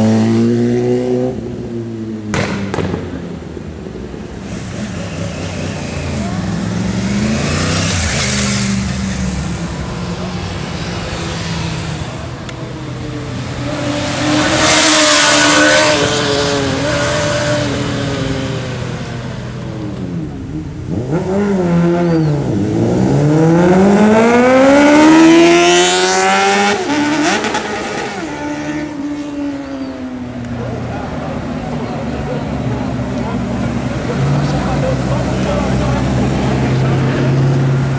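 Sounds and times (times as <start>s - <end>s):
motorcycle engines revving: 0.0s - 37.9s
motorcycle accelerating hard: 4.9s - 12.1s, 13.5s - 19.0s, 19.8s - 30.2s.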